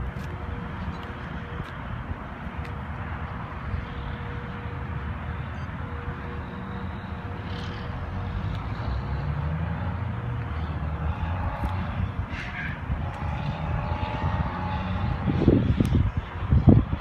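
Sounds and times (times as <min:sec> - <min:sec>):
passing motor vehicle rumble: 0:00.0 - 0:17.0.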